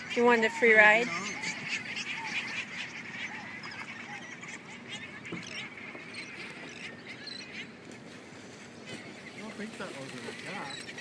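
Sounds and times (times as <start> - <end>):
sea lions barking: 0.0 - 7.8.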